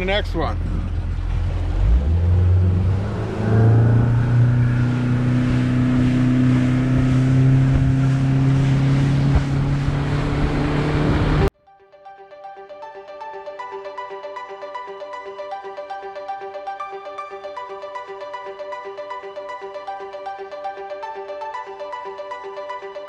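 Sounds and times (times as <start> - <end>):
outboard motor running: 0.0 - 11.5
wind and water noise: 0.6 - 11.5.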